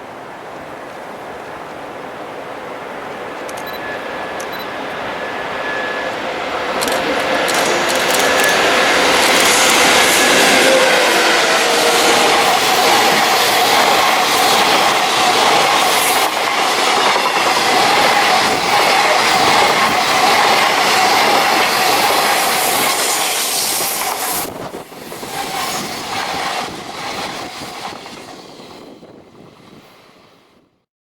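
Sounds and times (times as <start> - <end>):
freight train clattering past: 2.7 - 30.3.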